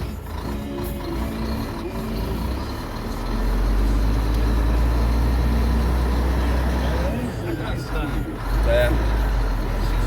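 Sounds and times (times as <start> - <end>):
truck diesel engine drone: 0.0 - 10.0.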